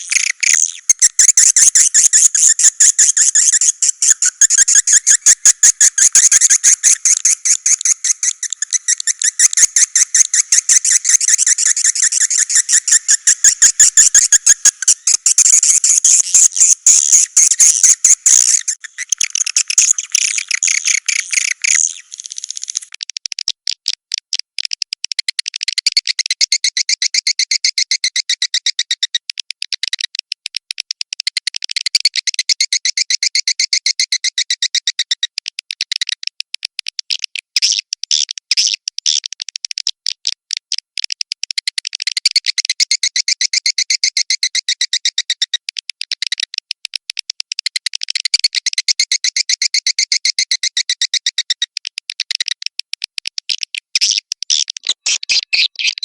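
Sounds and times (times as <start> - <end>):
swiftlets twittering: 0.0 - 22.9.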